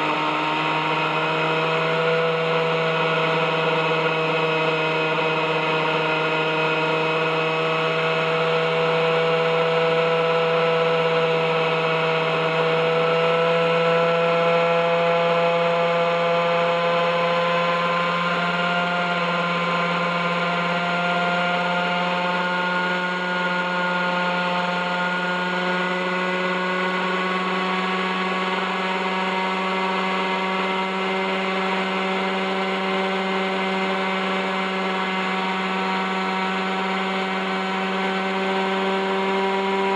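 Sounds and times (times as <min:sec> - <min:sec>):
model helicopter engine running: 0:00.0 - 0:39.9.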